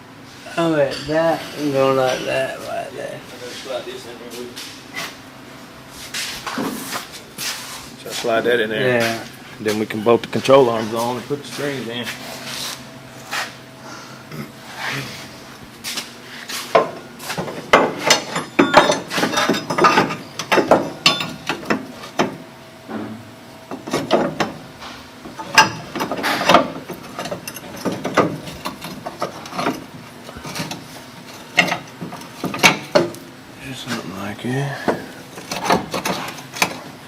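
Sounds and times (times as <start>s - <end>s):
metal parts and tools clanking: 16.7s - 22.4s, 23.7s - 33.2s, 34.8s - 37.0s.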